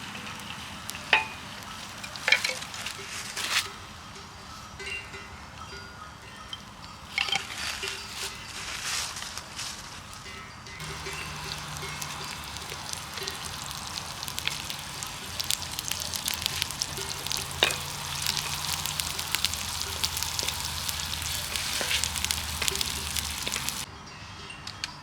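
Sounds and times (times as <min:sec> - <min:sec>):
food sizzling in hot oil: 0:00.0 - 0:02.9, 0:10.8 - 0:23.9.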